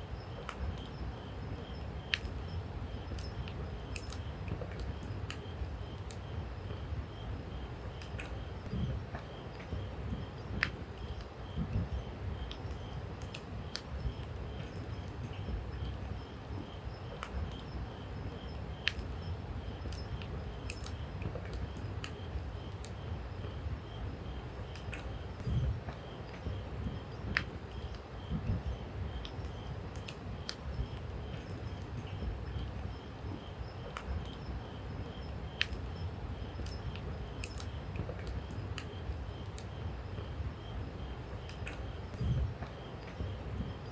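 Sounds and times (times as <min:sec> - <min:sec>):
insects chirping: 0:00.0 - 0:43.9
campfire crackling and popping: 0:03.0 - 0:06.3, 0:19.8 - 0:23.0, 0:35.3 - 0:39.8.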